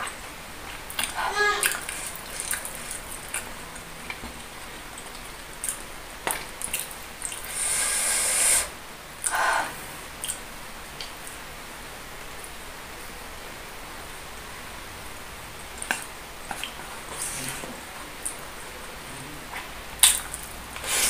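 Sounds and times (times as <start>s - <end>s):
wet squishy chewing: 0.6s - 4.3s, 4.9s - 7.5s
loud hiss: 7.4s - 8.8s, 20.8s - 21.0s.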